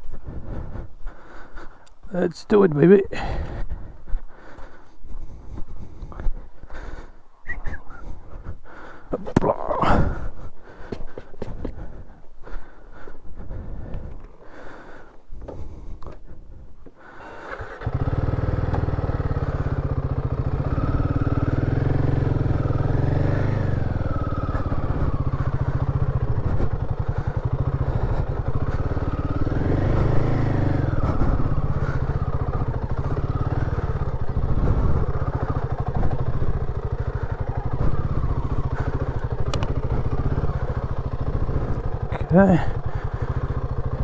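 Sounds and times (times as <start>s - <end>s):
motorcycle engine revving: 17.2s - 44.0s.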